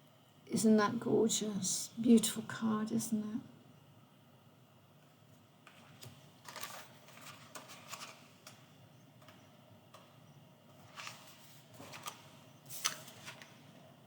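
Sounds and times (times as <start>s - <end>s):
paper rustling and tapping: 5.6s - 10.2s, 10.8s - 13.7s.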